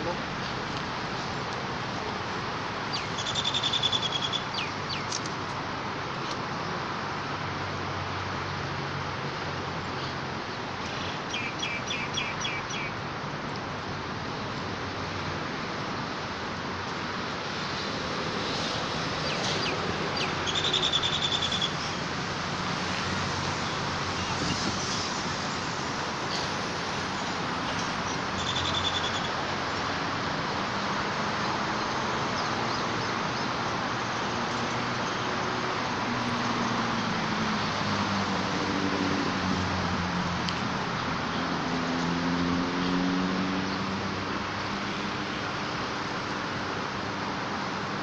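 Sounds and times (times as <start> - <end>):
outdoor background noise: 0.0 - 48.0
high bird chirps: 2.9 - 5.2, 28.4 - 29.3.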